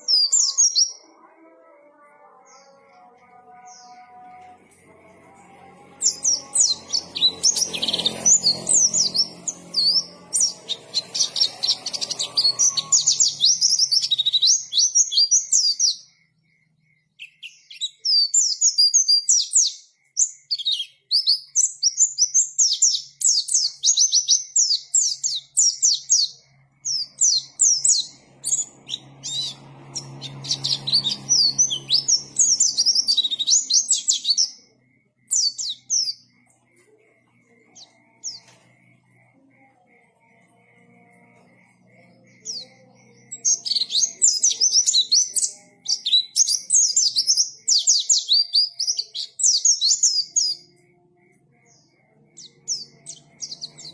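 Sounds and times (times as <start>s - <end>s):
bird twittering song: 0.0s - 1.2s, 5.8s - 53.9s
faint low hum: 24.9s - 47.4s.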